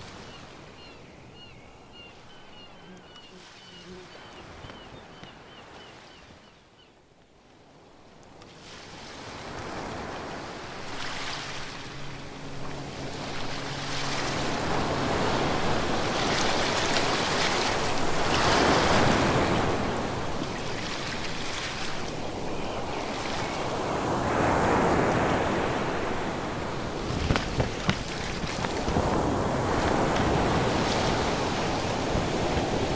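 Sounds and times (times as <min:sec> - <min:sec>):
ocean waves washing onto shore: 0:07.8 - 0:32.9.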